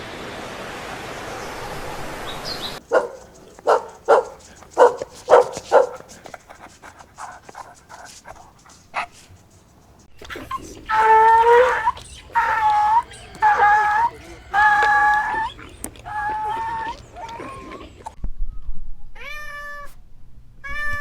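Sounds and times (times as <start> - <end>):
dog barking: 2.8 - 6.3.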